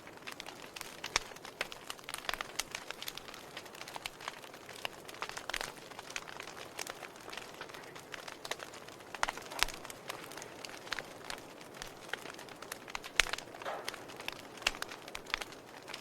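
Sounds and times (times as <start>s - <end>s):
soft steady fire hiss: 0.0s - 16.0s
wood fire crackling and popping: 0.0s - 16.0s.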